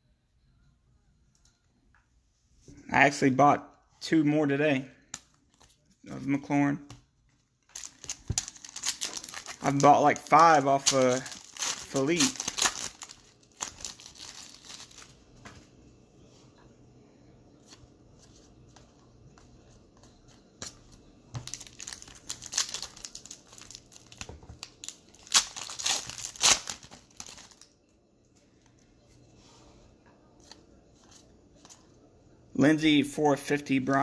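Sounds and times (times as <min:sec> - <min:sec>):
card wrappers tearing and crinkling: 0:07.6 - 0:15.2, 0:20.0 - 0:27.8.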